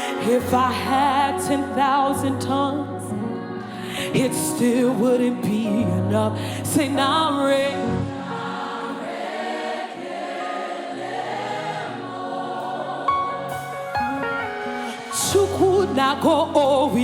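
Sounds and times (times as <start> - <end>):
solo voice singing: 0.0 - 8.5, 14.7 - 17.0
choir singing: 0.0 - 17.0.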